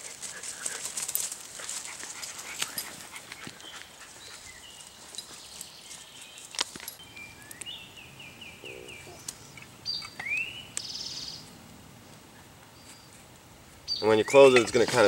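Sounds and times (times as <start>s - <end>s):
songbirds singing: 2.2s - 15.0s.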